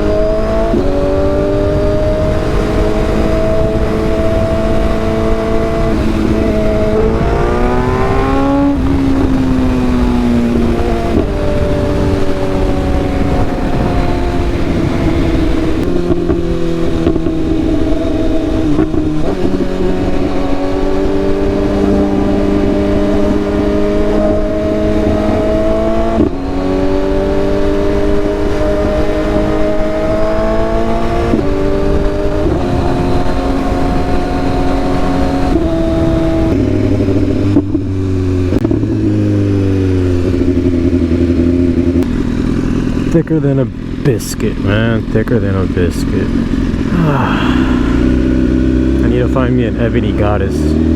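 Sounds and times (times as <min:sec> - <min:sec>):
wind rush over microphone: 0:00.0 - 0:39.6
motorcycle engine shifting gears: 0:00.0 - 0:50.9.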